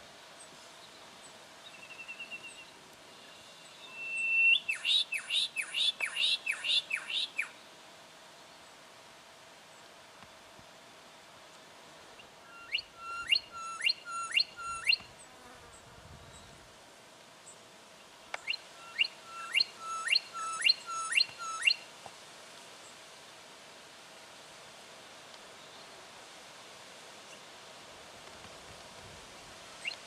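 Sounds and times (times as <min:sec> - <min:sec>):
goshawk calling sharp notes: 0:18.4 - 0:21.8.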